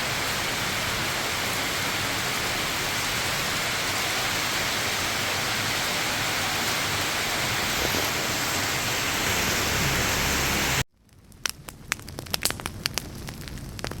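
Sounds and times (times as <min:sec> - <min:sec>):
heavy rain hissing: 0:00.0 - 0:10.8.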